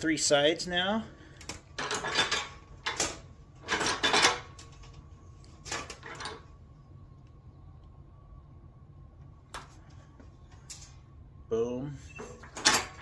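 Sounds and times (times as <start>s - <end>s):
sheet metal clanking and rattling: 1.8s - 4.7s.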